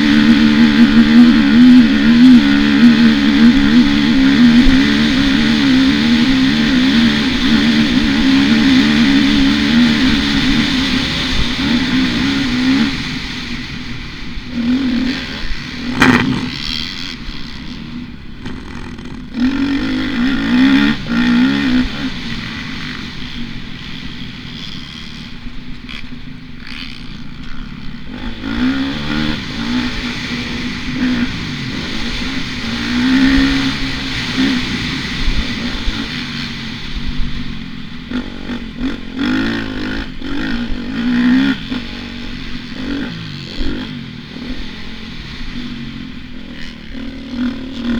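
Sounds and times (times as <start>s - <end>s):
motocross bike engine revving: 0.0s - 47.9s
clatter: 15.9s - 19.8s
sharp knock: 16.0s - 16.6s.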